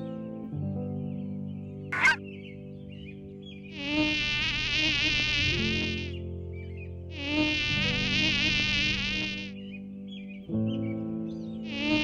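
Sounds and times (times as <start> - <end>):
soft background music: 0.0 - 12.0
mosquito wing whine: 2.0 - 2.2, 3.8 - 6.2, 7.2 - 9.5, 11.7 - 12.0.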